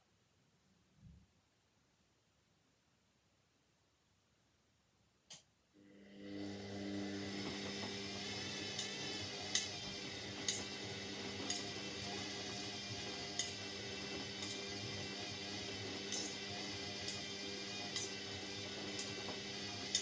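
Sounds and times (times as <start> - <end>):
washing machine hum: 5.8 - 20.0.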